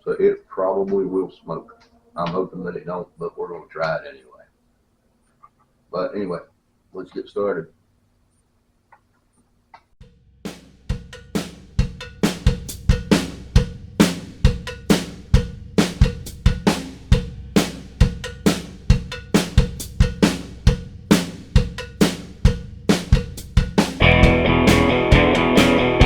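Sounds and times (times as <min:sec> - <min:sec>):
drum kit rock beat: 0:10.0 - 0:26.0.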